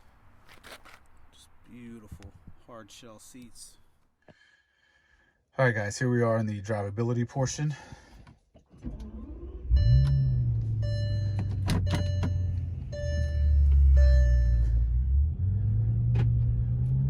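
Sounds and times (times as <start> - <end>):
car engine starting and idling: 8.7 - 17.0
warning chime beeps: 9.8 - 15.0.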